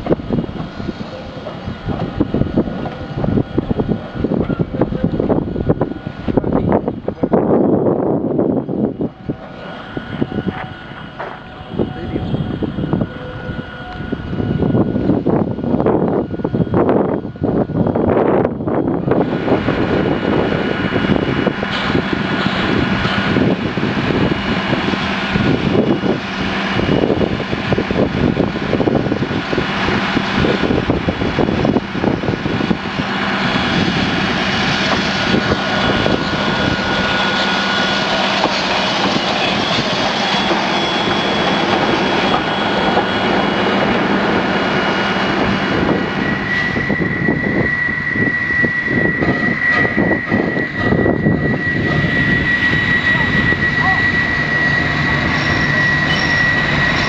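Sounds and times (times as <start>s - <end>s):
steady high whine: 0.0s - 57.0s
steam locomotive working: 0.0s - 57.0s
track maintenance machine: 48.9s - 57.0s.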